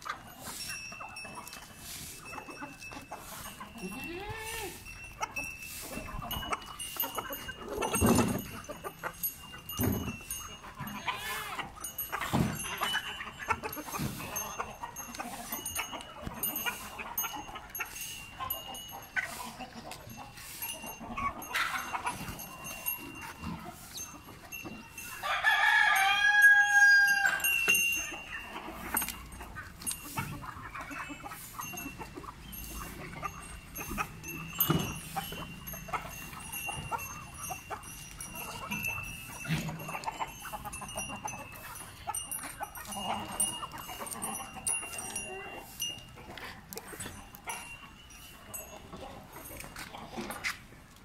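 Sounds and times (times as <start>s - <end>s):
chickens clucking: 0.0s - 51.0s
goats bleating: 3.7s - 4.9s, 10.8s - 13.4s
rooster crowing: 25.2s - 27.5s.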